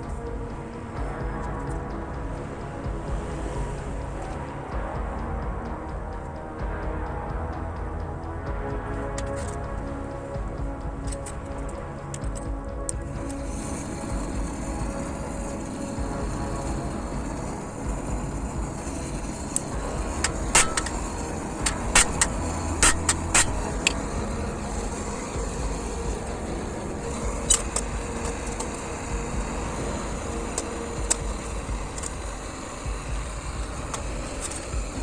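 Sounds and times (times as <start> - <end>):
low rushing noise: 0.0 - 35.0
hammer striking metal grate: 19.6 - 24.6.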